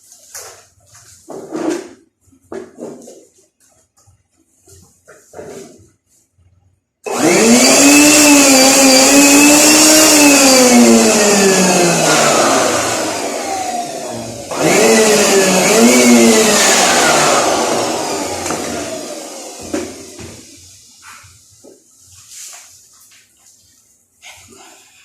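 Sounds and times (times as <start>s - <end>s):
high-speed electric motor whine: 7.1s - 20.4s.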